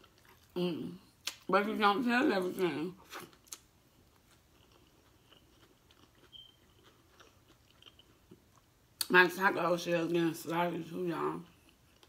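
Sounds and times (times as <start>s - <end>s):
soft chewing mouth sounds: 0.0s - 1.4s, 3.0s - 9.1s, 11.5s - 12.0s.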